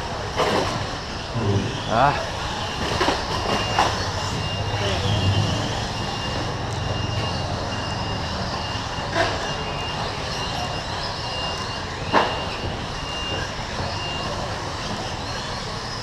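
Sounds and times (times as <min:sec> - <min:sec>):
rc trucks motor and tyre noise: 0:00.0 - 0:16.0
faint high tone beeps: 0:01.4 - 0:02.3.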